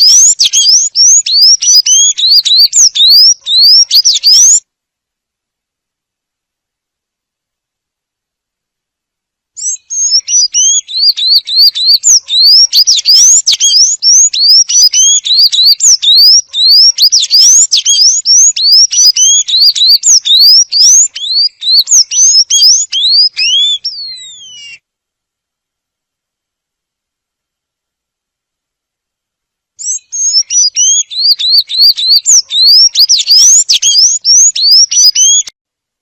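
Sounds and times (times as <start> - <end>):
bird singing squeaky notes: 9.6 - 24.8, 29.8 - 35.5.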